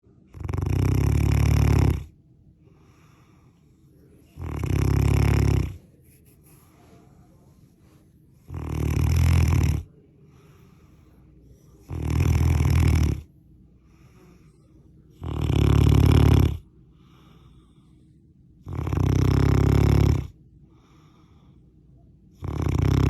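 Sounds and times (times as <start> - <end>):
dog snoring loudly: 0.2 - 2.2, 4.4 - 5.8, 8.4 - 9.9, 11.8 - 13.3, 15.2 - 16.6, 18.6 - 21.1, 22.4 - 23.0.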